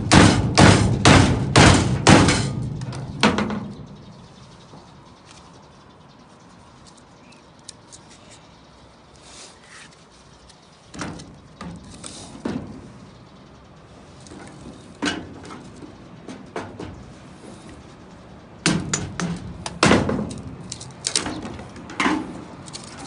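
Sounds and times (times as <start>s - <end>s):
knocks and clatters of objects: 0.0s - 5.5s, 10.8s - 13.0s, 14.2s - 17.2s, 18.6s - 23.0s
faint steady background noise: 0.0s - 23.0s.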